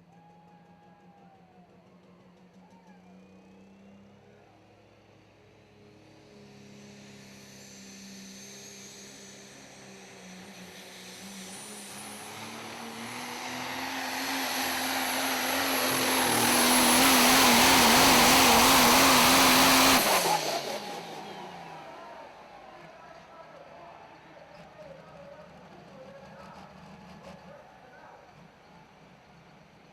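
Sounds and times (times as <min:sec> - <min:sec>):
diesel truck engine at full throttle: 0:06.6 - 0:24.0.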